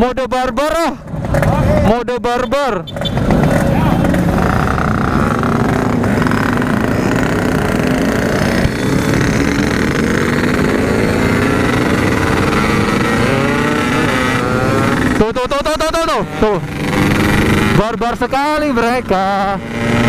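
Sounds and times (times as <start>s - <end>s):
motorcycle engine at full throttle: 0.4s - 20.0s.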